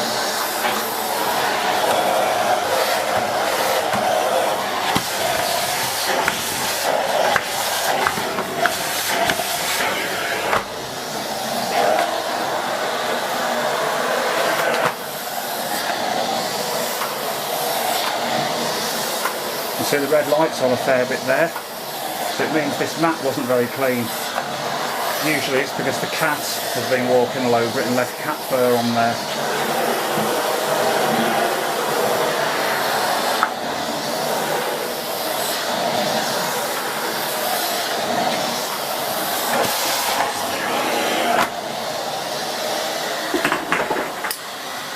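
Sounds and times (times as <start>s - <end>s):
vacuum cleaner running: 0.0s - 44.9s.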